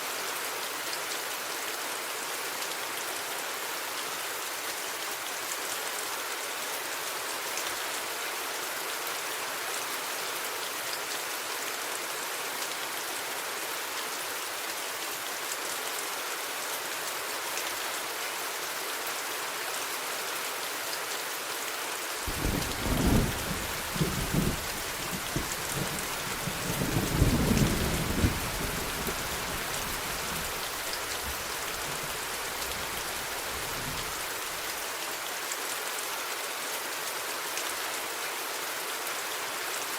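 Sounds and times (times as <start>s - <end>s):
heavy rain hissing: 22.2s - 35.1s
thunder rumbling: 22.3s - 30.7s.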